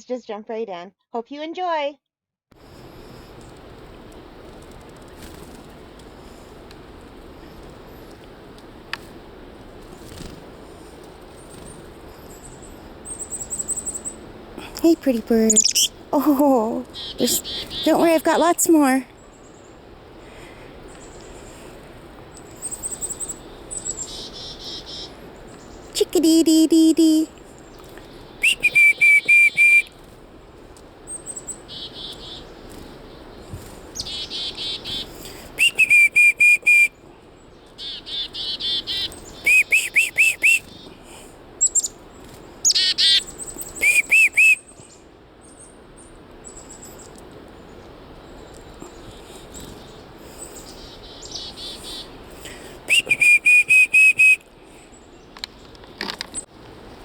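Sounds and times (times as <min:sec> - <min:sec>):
chickadees calling: 0:02.7 - 0:56.5
faint high bird calls: 0:11.3 - 0:26.0, 0:27.1 - 0:30.0, 0:31.1 - 0:56.5.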